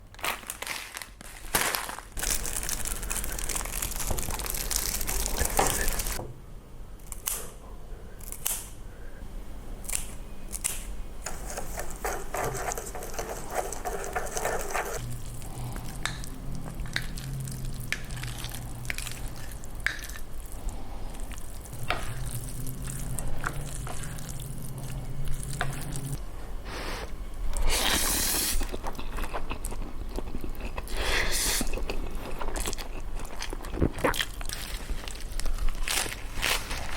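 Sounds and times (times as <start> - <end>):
steady low hum: 2.2 - 31.0
squishy stirring of noodles: 11.3 - 26.2.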